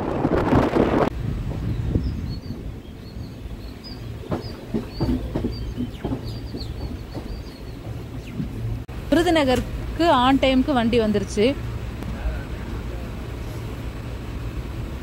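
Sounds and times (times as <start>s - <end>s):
small birds chirping: 1.6s - 8.7s
low steady rumble: 6.3s - 15.0s.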